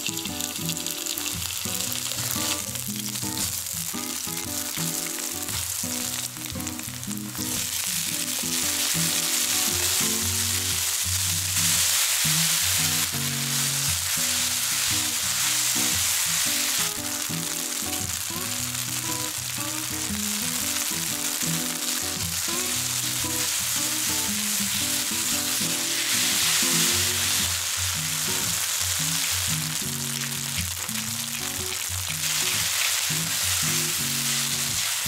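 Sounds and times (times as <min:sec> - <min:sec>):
noodles sizzling in a pan: 0:00.0 - 0:35.0
background music: 0:12.5 - 0:28.4.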